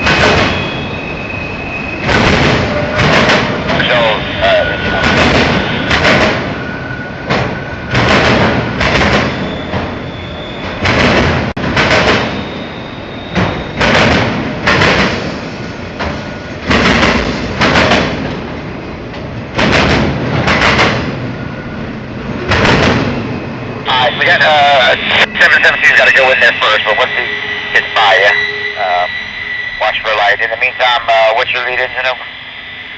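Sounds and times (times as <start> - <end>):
freight train rumbling past: 0.0 - 32.9
wheels clacking over rail joints: 13.3 - 21.5.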